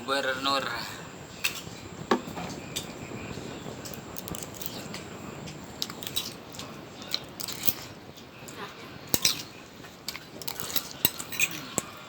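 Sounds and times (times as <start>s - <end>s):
person chewing food: 3.8s - 4.9s, 5.8s - 7.9s, 10.1s - 12.0s.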